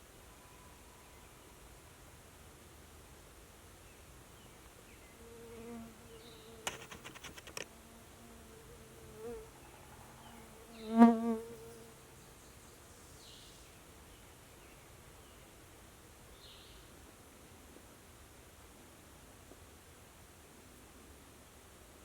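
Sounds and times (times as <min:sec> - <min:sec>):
quick clicks: 0:06.6 - 0:07.7
flying insect buzzing: 0:10.3 - 0:12.0.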